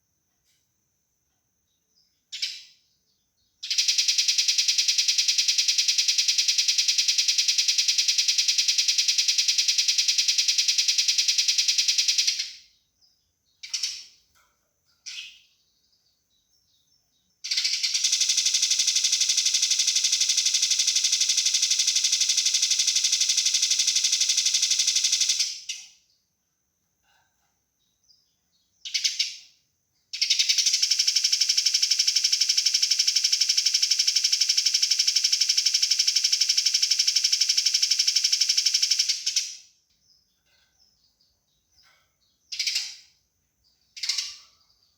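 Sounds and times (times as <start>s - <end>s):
sparrow rattling churrs: 3.6s - 12.6s, 13.6s - 15.6s, 17.4s - 26.0s, 28.8s - 29.4s, 30.2s - 33.7s, 41.7s - 44.9s
sparrow short chirps: 13.6s - 14.2s, 15.0s - 16.0s.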